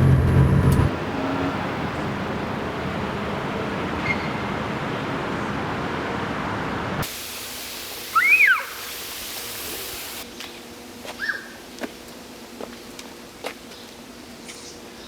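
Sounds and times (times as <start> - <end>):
vehicle road noise: 0.0 - 7.1
high hiss: 7.0 - 10.3.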